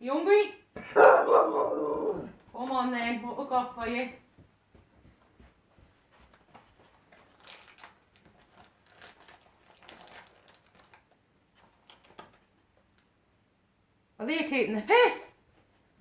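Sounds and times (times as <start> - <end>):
faint cardboard crinkling: 4.4 - 13.1.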